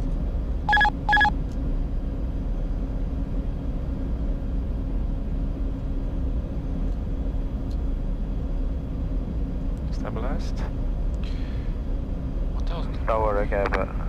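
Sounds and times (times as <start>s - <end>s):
airflow and engine hum: 0.0s - 14.0s
short electronic beep: 0.7s - 1.3s.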